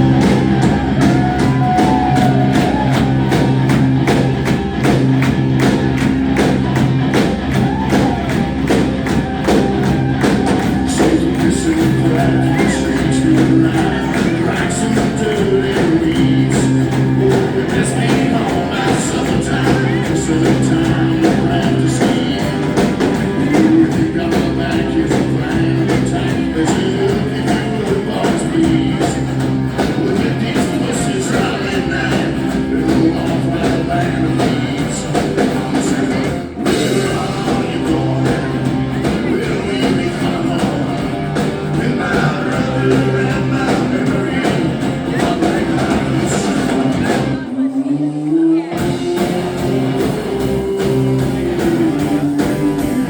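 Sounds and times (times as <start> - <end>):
live rock band playing: 0.0 - 53.0.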